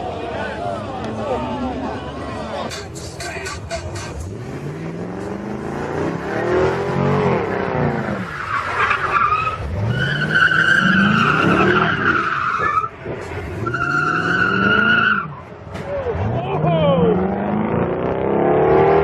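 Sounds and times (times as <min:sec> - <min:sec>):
car engine revving: 0:02.7 - 0:15.4, 0:16.0 - 0:19.0
tyres squealing: 0:07.9 - 0:15.4.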